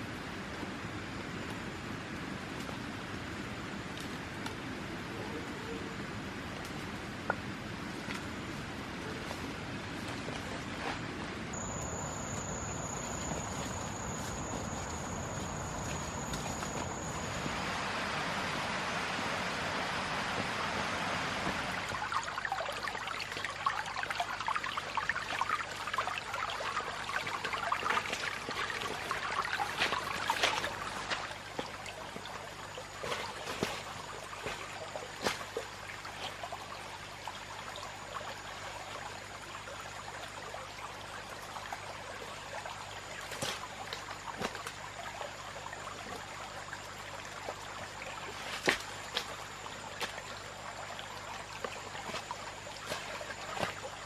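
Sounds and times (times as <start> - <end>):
water trickling: 11.5 - 18.2, 21.4 - 54.0.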